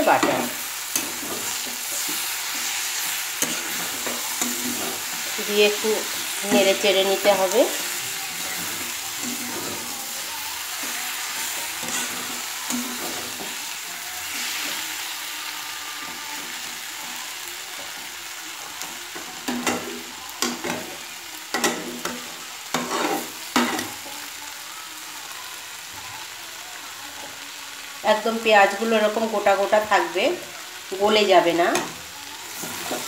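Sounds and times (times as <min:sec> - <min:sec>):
metal spatula scraping pan: 0:00.0 - 0:13.6, 0:21.6 - 0:23.8
food sizzling in a pan: 0:00.0 - 0:33.0.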